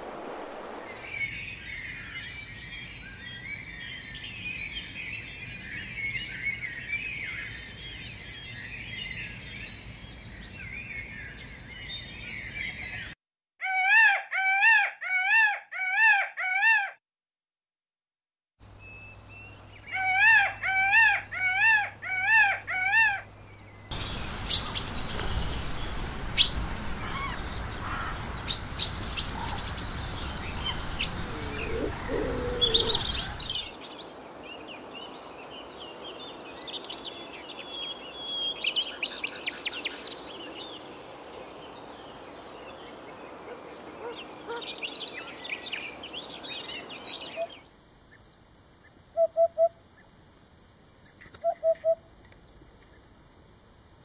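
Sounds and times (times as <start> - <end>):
steady hiss: 0.0 - 1.1, 23.9 - 36.6
birds chirping and twittering: 18.7 - 50.2
bird calls rising and falling: 19.8 - 34.0.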